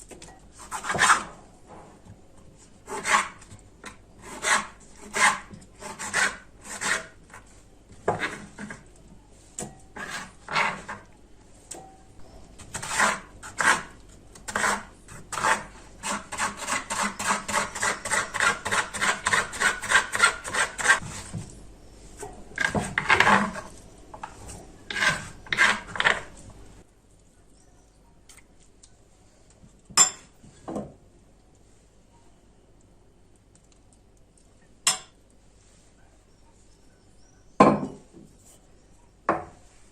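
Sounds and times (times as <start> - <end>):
kitchen tool scraping food: 0.5 - 2.0, 2.6 - 8.9, 9.6 - 11.1, 12.2 - 21.5, 22.1 - 26.5.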